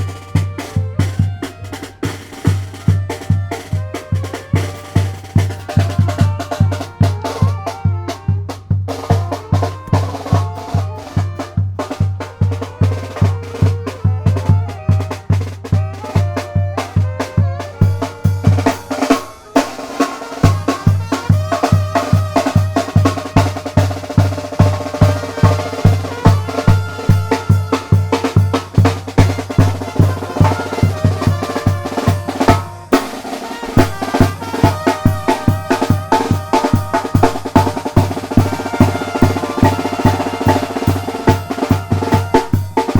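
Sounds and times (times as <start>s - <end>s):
snare drum strokes: 0.0s - 7.5s, 16.8s - 42.9s
band playing: 0.0s - 42.9s
brass melody: 0.0s - 42.9s
held horn chords: 9.5s - 42.9s
bass drum beat: 22.2s - 33.0s, 33.8s - 42.9s.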